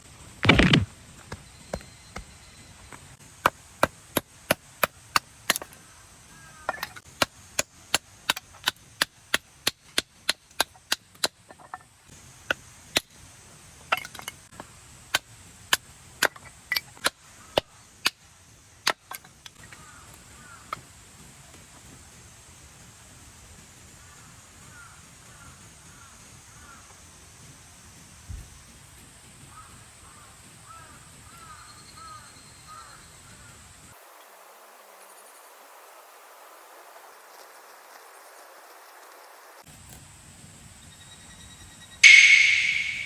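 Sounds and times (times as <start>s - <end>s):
axe chopping firewood: 0.4s - 5.8s, 6.6s - 11.8s, 13.9s - 18.2s, 18.8s - 19.3s.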